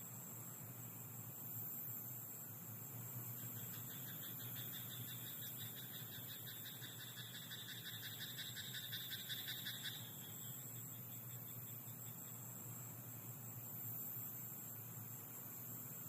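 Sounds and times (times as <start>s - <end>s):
faint hiss: 0.0s - 16.0s
frog croaking: 3.4s - 11.6s.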